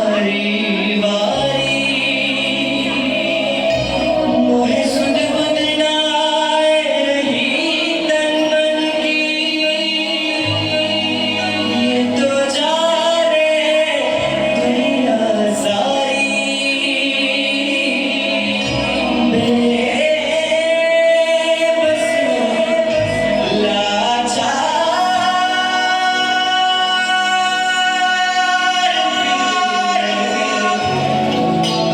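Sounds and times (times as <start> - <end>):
instrumental accompaniment: 0.0 - 31.9
person singing: 0.0 - 31.9.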